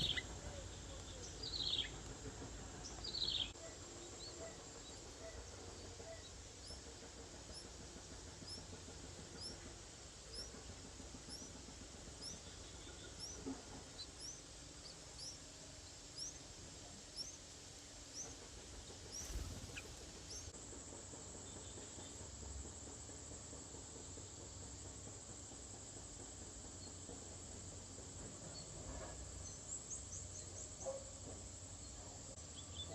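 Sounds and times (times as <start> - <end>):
bird chirping: 0.0 - 2.0, 18.1 - 20.5
background hiss: 0.0 - 23.0.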